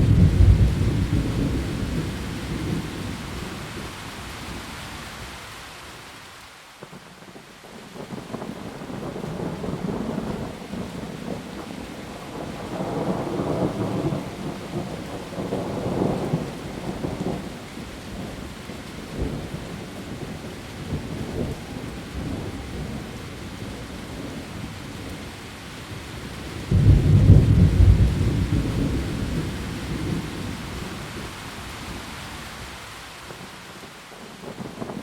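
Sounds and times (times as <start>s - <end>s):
thunder rumbling: 0.0s - 4.7s, 8.0s - 25.3s, 26.2s - 32.1s
heavy rain on leaves: 0.0s - 35.0s.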